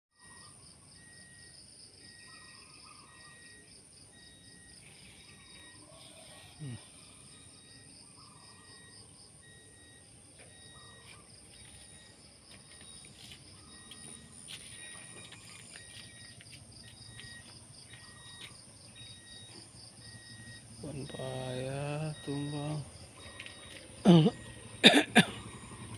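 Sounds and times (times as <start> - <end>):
insects and crickets chorus: 0.2 - 25.9.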